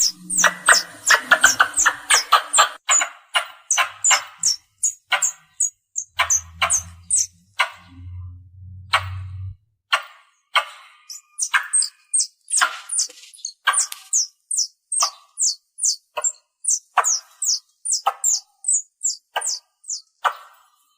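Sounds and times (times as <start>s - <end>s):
squirrel calls high chips: 0.0s - 3.0s, 3.7s - 7.3s, 11.1s - 20.0s.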